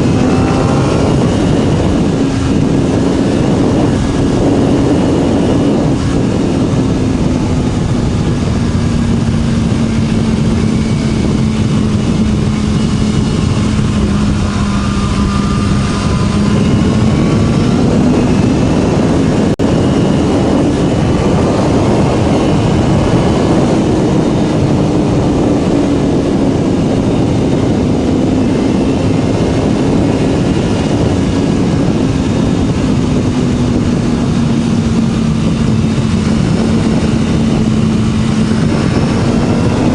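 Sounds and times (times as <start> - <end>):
motorcycle engine cruising: 0.0 - 39.9
wind rush: 0.0 - 39.9.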